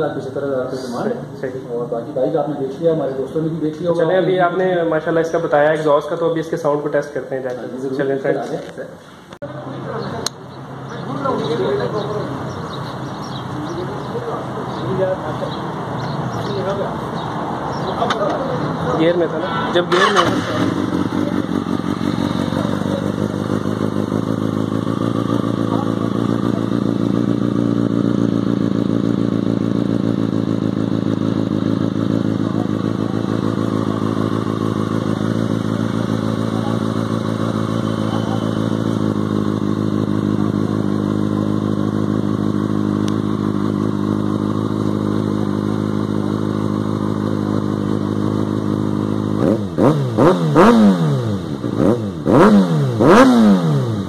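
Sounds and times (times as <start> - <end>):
motorcycle engine idling: 9.0 - 54.0
motorcycle engine revving: 9.4 - 54.0.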